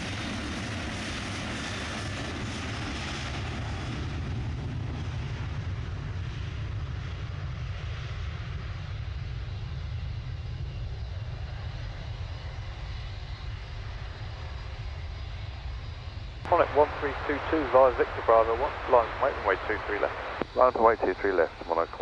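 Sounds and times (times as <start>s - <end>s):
airliner engines rumbling: 0.0s - 22.0s.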